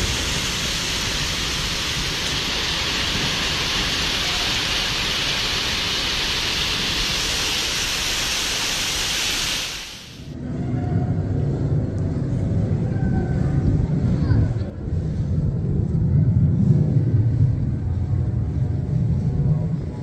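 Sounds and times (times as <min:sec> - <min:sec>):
heavy rain hiss: 0:00.0 - 0:10.4.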